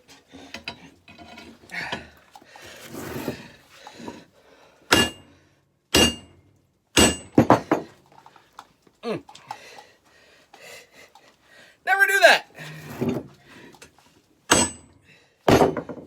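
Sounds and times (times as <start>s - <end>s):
light metallic clinking and scraping: 0.0s - 2.2s
hammer striking steel on anvil: 4.9s - 5.3s, 5.9s - 6.4s, 7.0s - 7.6s, 14.5s - 14.9s.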